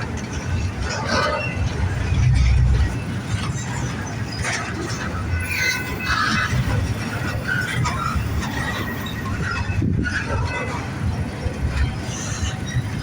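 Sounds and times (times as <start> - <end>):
freight train rumbling: 0.0 - 13.0
high-pitched wheel squeals: 5.3 - 10.9.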